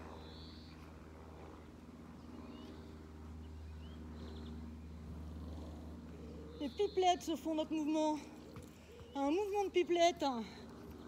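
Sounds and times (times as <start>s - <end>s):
low outdoor rumble: 0.0s - 11.0s
faint bird chirps and trill: 0.1s - 0.8s.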